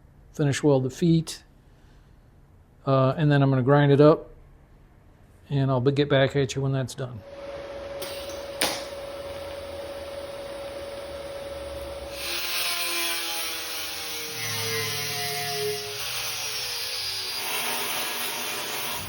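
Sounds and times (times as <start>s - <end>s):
power grinder grinding metal: 7.3s - 19.0s.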